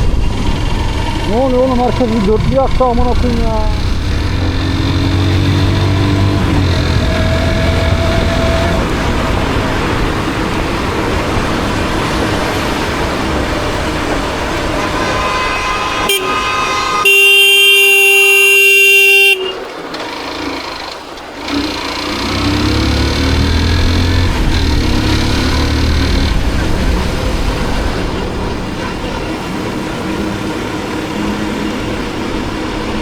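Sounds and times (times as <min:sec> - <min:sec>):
motorcycle engine and road noise: 0:00.0 - 0:33.0
long vehicle horn blast: 0:14.0 - 0:20.2.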